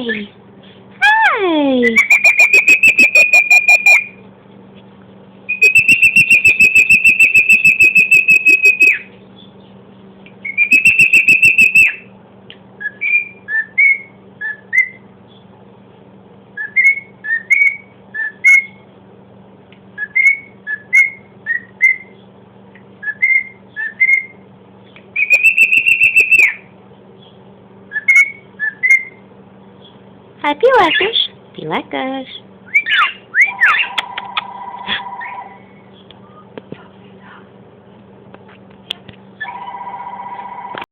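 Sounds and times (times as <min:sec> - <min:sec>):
cockatiel whistling: 0:02.0 - 0:04.2, 0:05.5 - 0:09.1, 0:10.4 - 0:12.0, 0:12.8 - 0:15.0, 0:16.6 - 0:18.8, 0:20.0 - 0:22.2, 0:23.0 - 0:24.4, 0:25.2 - 0:26.7, 0:27.9 - 0:29.2, 0:32.7 - 0:34.0.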